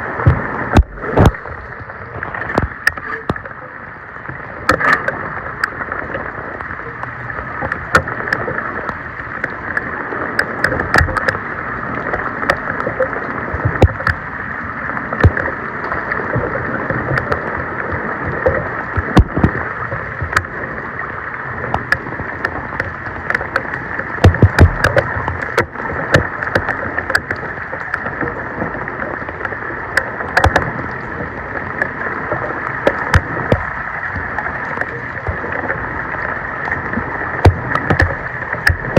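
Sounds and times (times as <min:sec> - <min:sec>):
floodwater rushing and splashing: 0:00.0 - 0:38.9
sharp knocks: 0:24.2 - 0:25.0.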